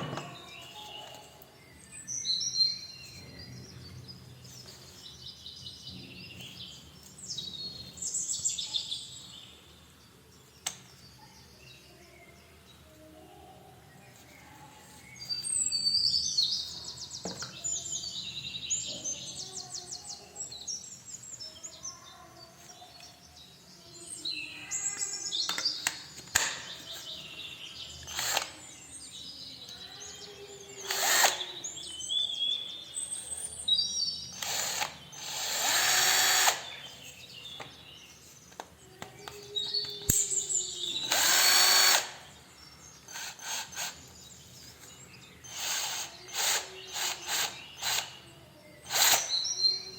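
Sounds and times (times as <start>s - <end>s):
cordless drill bursts: 28.0s - 28.6s, 30.8s - 31.5s, 34.3s - 36.8s, 41.0s - 42.2s, 43.1s - 44.0s, 45.4s - 48.2s, 48.9s - 49.5s.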